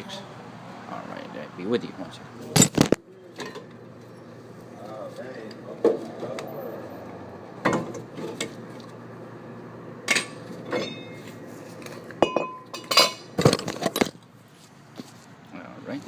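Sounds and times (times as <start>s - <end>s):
metal tools clanking: 10.1s - 14.2s.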